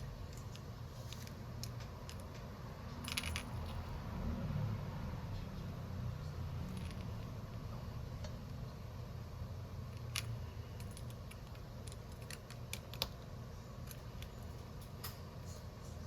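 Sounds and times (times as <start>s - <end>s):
steady low hum: 0.0s - 16.0s
small tools clicking on phone parts: 10.0s - 13.3s.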